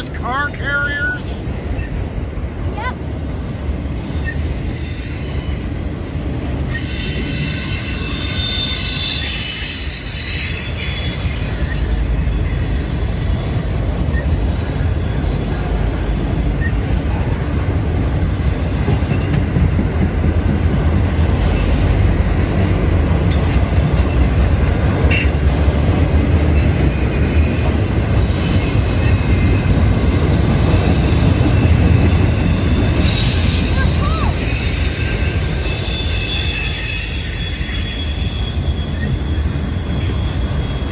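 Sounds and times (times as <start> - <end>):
freight train rumbling past: 0.0 - 40.9
steel wheels squealing: 1.6 - 19.8, 26.6 - 40.9.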